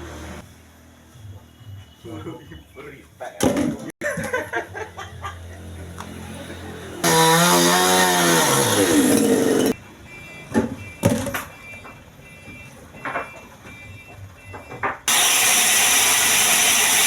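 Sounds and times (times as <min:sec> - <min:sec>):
power tool cutting wood: 0:07.0 - 0:09.8, 0:15.1 - 0:17.0.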